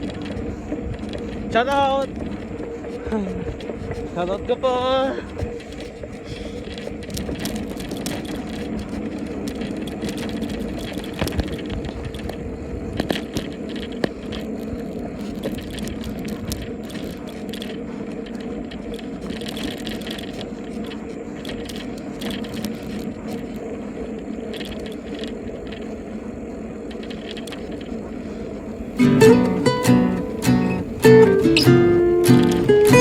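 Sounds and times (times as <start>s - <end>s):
bicycle tyres on rough road: 0.0s - 33.0s
bike rattling and knocking: 0.0s - 33.0s.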